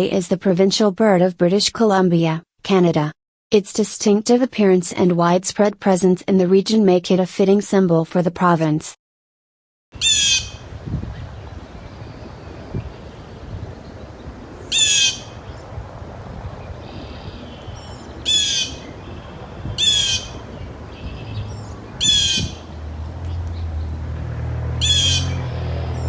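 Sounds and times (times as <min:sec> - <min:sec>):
faint high bird calls: 0:10.0 - 0:10.6, 0:11.2 - 0:15.7, 0:16.8 - 0:22.6
jay harsh rasping squawks: 0:10.0 - 0:10.6, 0:14.7 - 0:15.4, 0:17.0 - 0:22.6, 0:24.8 - 0:25.6.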